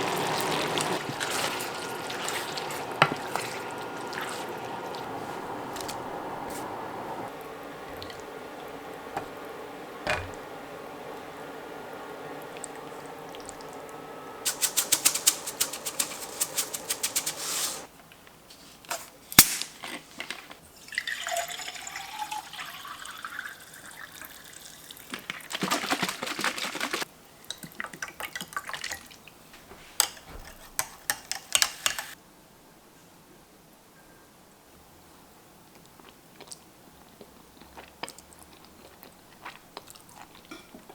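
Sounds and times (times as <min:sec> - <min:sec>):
water running and pouring: 0:00.0 - 0:06.1, 0:14.4 - 0:17.9, 0:20.7 - 0:29.2
steady hum: 0:00.0 - 0:17.9
rapid clicking and clattering: 0:14.5 - 0:17.8.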